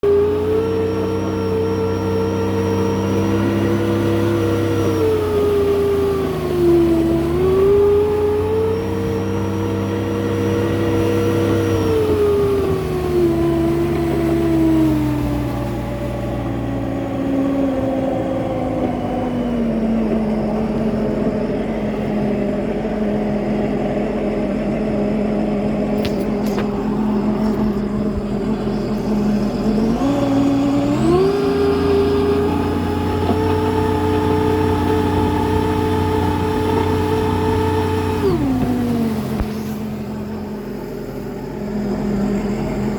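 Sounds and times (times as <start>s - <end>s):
personal watercraft engine running: 0.0s - 42.9s
jet pump impeller rattling: 25.9s - 30.8s.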